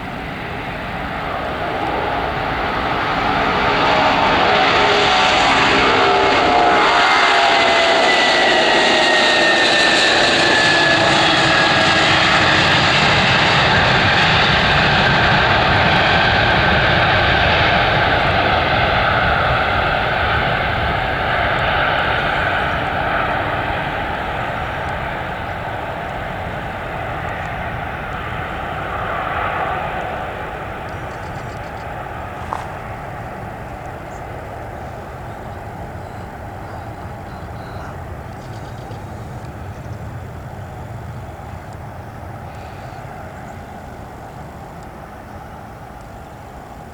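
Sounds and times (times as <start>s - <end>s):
aircraft engines roaring past: 0.0s - 46.9s
engine whine dropping in pitch: 0.6s - 17.9s.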